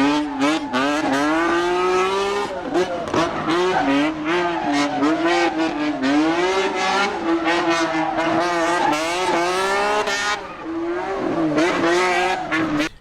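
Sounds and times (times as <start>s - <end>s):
race car engine at high revs: 0.0s - 13.0s
tyre squeal: 11.9s - 13.0s.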